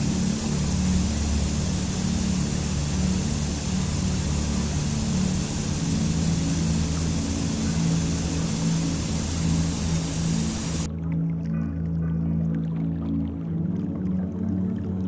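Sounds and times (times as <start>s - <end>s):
rushing water: 0.0s - 10.9s
ambient music drone: 0.0s - 15.0s.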